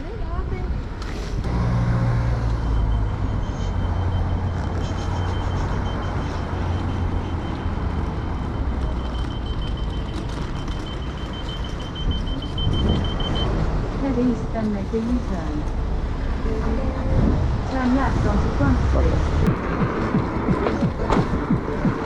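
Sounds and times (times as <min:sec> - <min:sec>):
wind buffeting microphone: 0:16.8 - 0:21.0.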